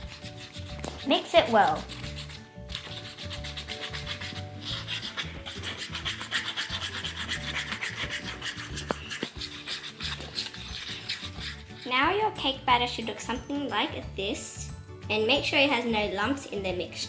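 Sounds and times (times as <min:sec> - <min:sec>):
spoon scraping batter in plastic tray: 0:00.0 - 0:12.4.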